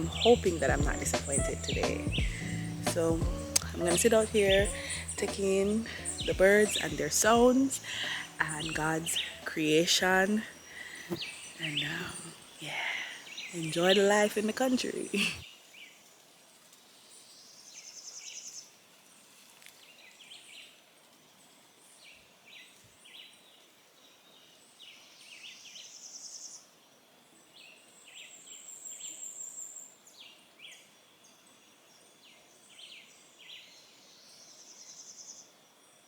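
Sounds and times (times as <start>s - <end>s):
buzzy pulsed bird trill: 0.0s - 15.4s
high bird chirps: 0.0s - 15.4s.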